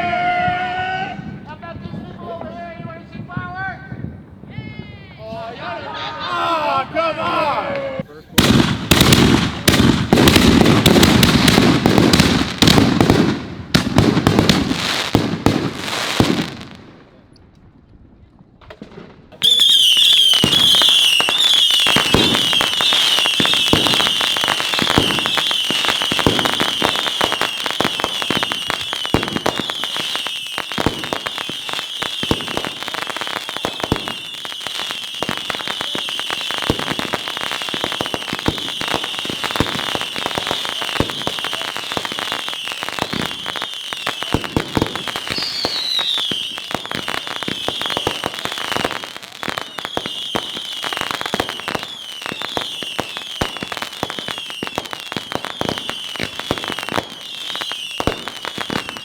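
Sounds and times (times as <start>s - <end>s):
fireworks high whistling: 0.0s - 16.4s, 19.3s - 59.0s
fireworks crackling and popping: 0.0s - 59.0s
falling firework whistle: 19.4s - 59.0s.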